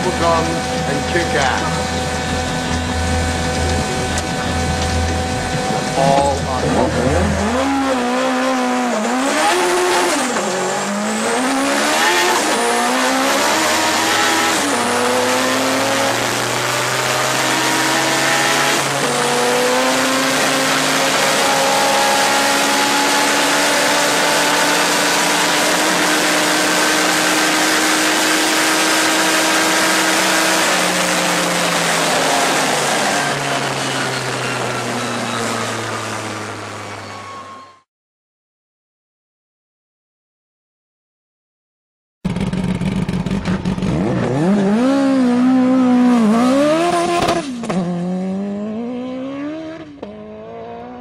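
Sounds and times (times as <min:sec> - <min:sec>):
heavy rushing noise: 0:00.0 - 0:08.2
car engine accelerating: 0:00.0 - 0:37.6, 0:42.3 - 0:51.0.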